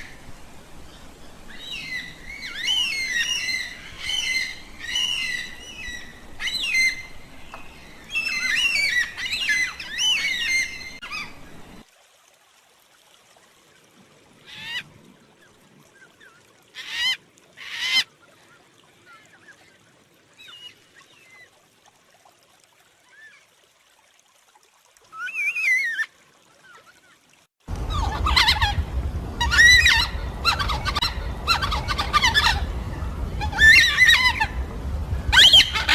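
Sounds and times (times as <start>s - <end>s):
cockatoos calling with high wails: 27.8s - 34.7s, 35.3s - 35.9s.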